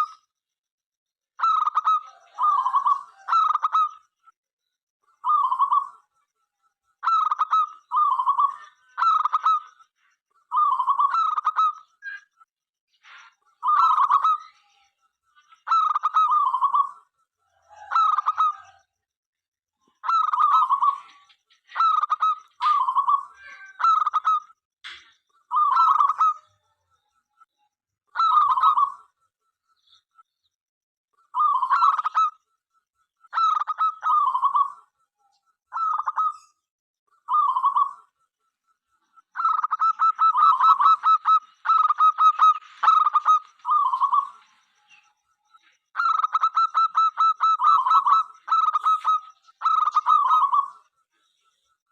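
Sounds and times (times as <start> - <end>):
dove cooing: 15.7 - 18.8, 37.3 - 38.1, 39.4 - 44.5, 46.0 - 50.8.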